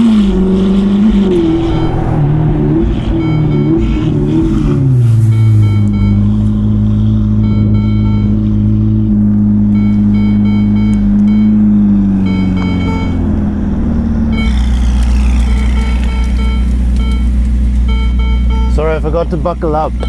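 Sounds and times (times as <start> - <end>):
car engine idling: 0.0 - 20.0
seatbelt reminder chime: 7.4 - 8.4, 9.8 - 11.6, 12.2 - 13.2, 15.4 - 19.1.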